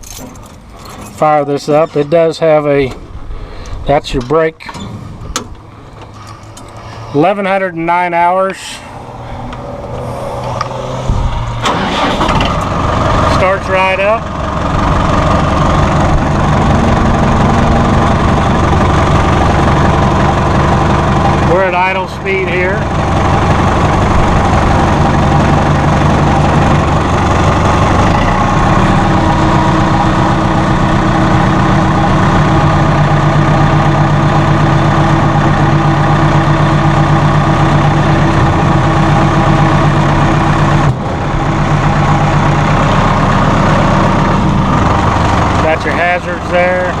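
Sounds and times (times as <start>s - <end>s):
diesel engine idling: 0.0s - 47.0s.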